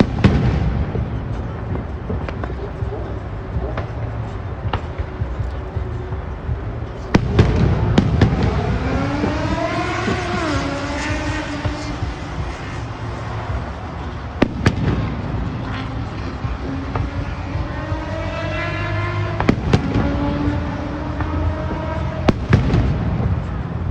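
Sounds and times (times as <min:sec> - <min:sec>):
fireworks bangs: 0:00.0 - 0:18.3, 0:19.1 - 0:23.9
rising and falling pitched sound: 0:04.6 - 0:23.4.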